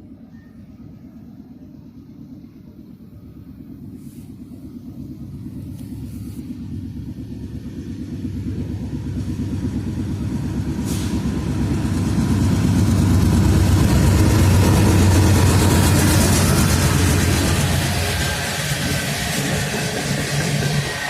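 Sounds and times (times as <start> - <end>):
diesel locomotive rumbling: 0.0 - 21.0
brief hiss: 10.8 - 11.4.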